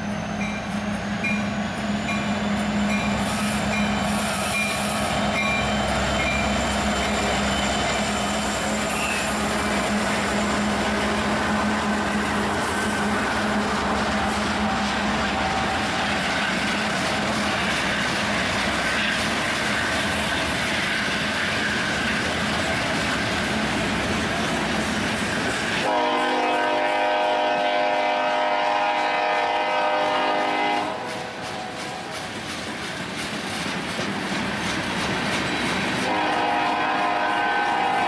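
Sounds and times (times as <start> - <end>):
train rolling on rails: 0.0 - 38.0
locomotive horn chord: 25.8 - 31.1, 36.0 - 38.0.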